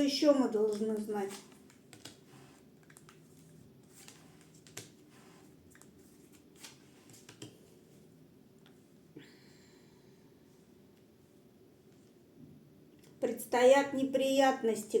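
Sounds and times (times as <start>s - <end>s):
cards clicking and tapping: 0.7s - 3.2s, 3.9s - 5.0s, 5.7s - 7.6s.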